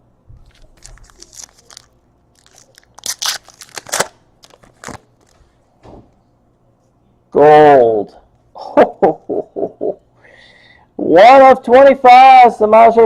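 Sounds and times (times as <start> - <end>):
cards crinkling and rustling: 0.4 - 5.5.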